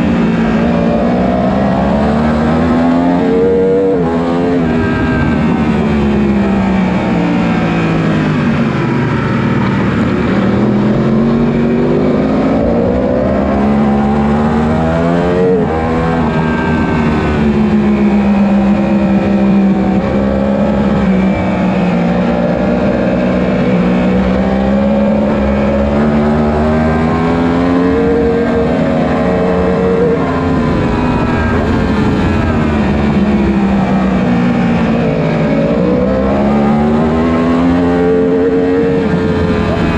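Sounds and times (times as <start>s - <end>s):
motorcycle engine revving hard: 0.0s - 39.9s.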